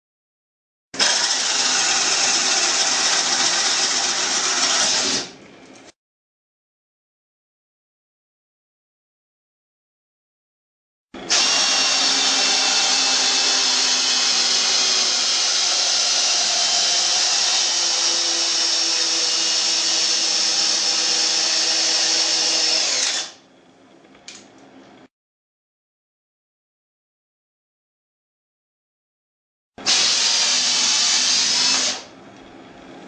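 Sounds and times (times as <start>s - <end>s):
drill motor running: 1.0s - 5.3s, 11.2s - 23.4s, 29.8s - 32.1s.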